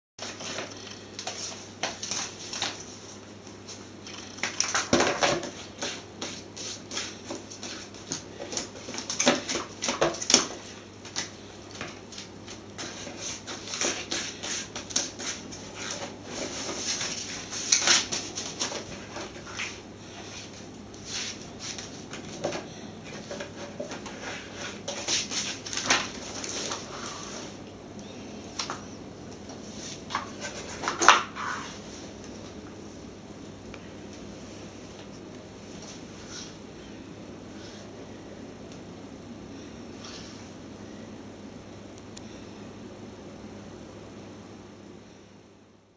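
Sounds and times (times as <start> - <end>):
paper crackling and rustling: 0.2 - 27.6, 28.6 - 32.5.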